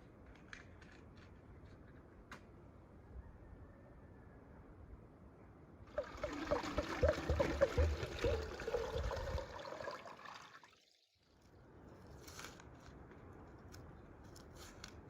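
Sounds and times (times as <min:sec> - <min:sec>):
water pouring with bubbly blips: 0:05.9 - 0:11.1.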